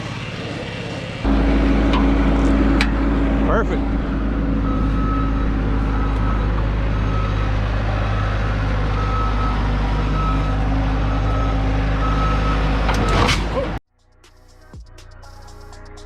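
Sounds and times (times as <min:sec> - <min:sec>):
vehicle engine running: 0:00.0 - 0:13.0
reversing alarm beeping: 0:04.4 - 0:13.3.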